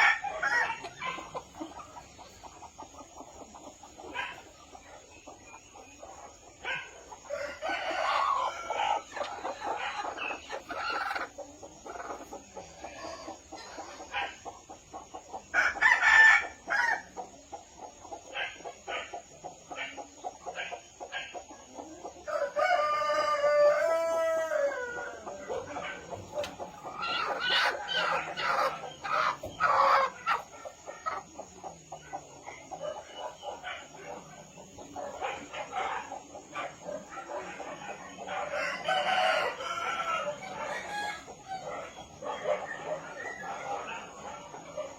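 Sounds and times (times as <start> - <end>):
rooster crowing: 0.0 - 0.9, 7.3 - 9.1, 22.3 - 25.2, 38.5 - 41.7
chickens clucking and cackling: 0.0 - 44.9.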